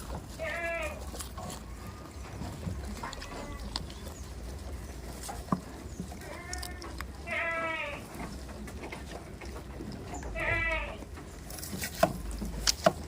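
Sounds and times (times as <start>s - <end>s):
goat bleating: 0.3s - 4.0s, 6.2s - 8.3s, 10.2s - 11.2s.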